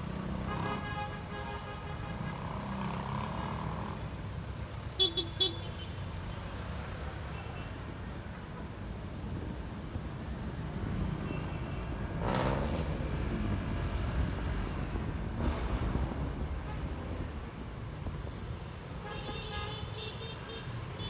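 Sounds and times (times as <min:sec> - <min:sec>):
vehicles passing close: 0:00.0 - 0:21.0
scooter engine and wind rumble: 0:08.9 - 0:19.0.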